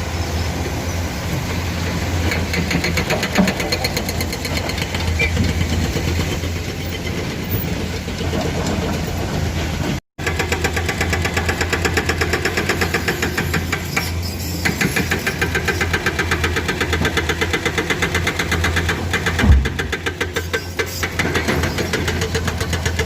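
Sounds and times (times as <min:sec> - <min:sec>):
excavator diesel engines clattering: 0:00.0 - 0:23.0
brief low thump: 0:19.4 - 0:19.8.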